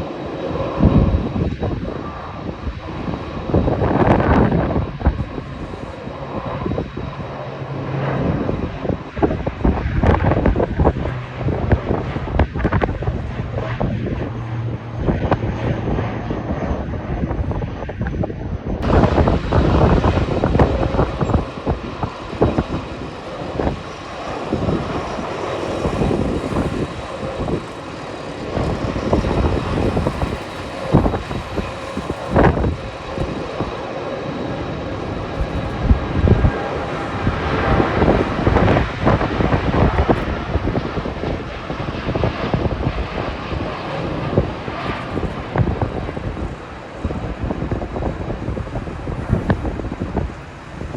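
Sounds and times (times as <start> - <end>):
jet engines running: 0.0 - 50.9
wind buffeting microphone: 0.0 - 50.9.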